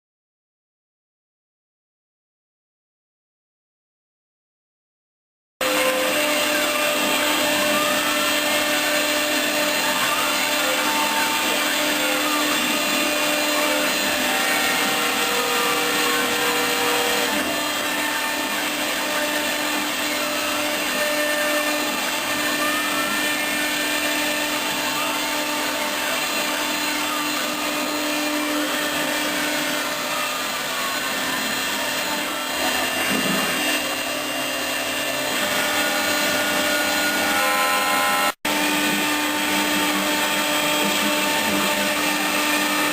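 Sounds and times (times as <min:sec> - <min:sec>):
router motor tone with hiss: 0:05.6 - 0:42.9.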